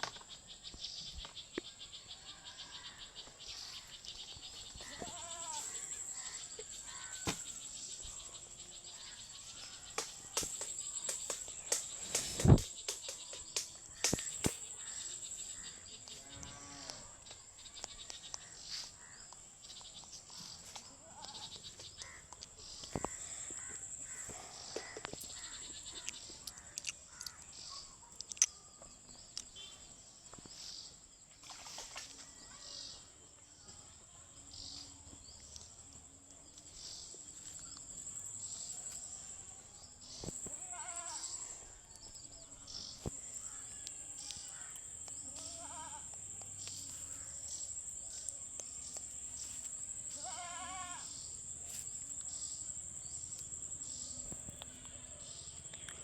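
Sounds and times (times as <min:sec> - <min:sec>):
animal bleats: 0:04.8 - 0:05.7, 0:45.3 - 0:46.1, 0:50.2 - 0:51.1.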